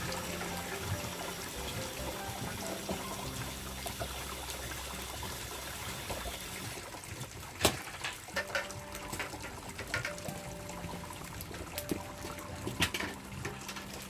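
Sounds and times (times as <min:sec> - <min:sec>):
water trickling: 0:00.0 - 0:14.0
sharp clicks and crackles: 0:07.6 - 0:14.0.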